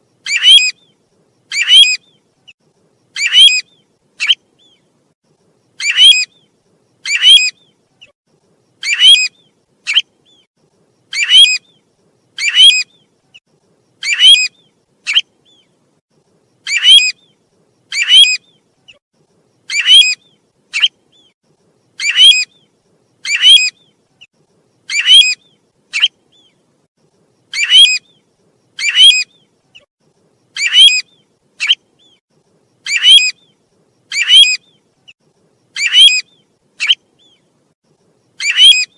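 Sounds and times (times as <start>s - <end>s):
bird whistled call: 0.2s - 0.9s, 1.5s - 2.2s, 3.2s - 4.8s, 5.8s - 6.4s, 7.0s - 7.7s, 8.8s - 10.5s, 11.1s - 11.8s, 12.4s - 13.0s, 14.0s - 15.7s, 16.7s - 18.6s, 19.7s - 21.4s, 22.0s - 24.0s, 24.9s - 26.6s, 27.5s - 28.2s, 28.8s - 29.9s, 30.6s - 32.2s, 32.8s - 34.8s, 35.8s - 37.4s, 38.4s - 38.9s.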